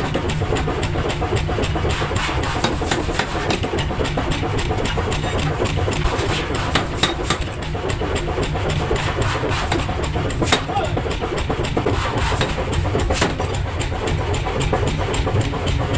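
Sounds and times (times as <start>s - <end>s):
machine rumbling: 0.0s - 15.9s
sharp metal knocks: 1.9s - 8.0s, 8.7s - 15.9s.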